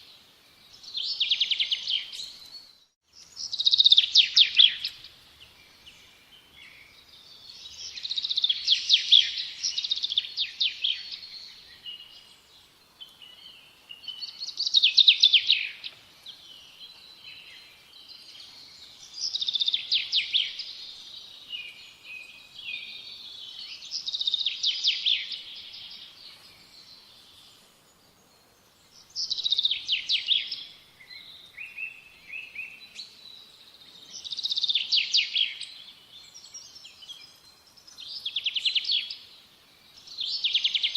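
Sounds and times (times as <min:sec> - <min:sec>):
songbird trilling: 0:03.3 - 0:05.1, 0:22.6 - 0:26.1, 0:29.1 - 0:30.8.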